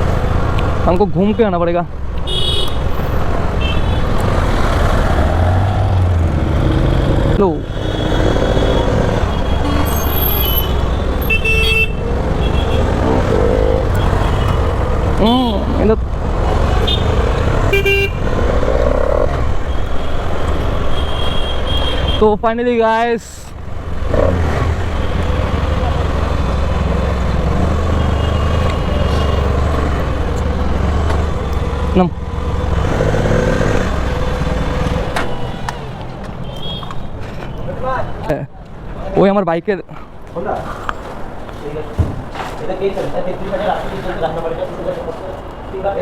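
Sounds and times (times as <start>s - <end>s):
motorcycle engine and traffic rumble: 0.0s - 39.3s, 39.9s - 46.0s
road and wind noise: 0.0s - 46.0s
vehicle horn toot: 2.2s - 2.8s, 7.8s - 13.0s, 16.8s - 18.2s.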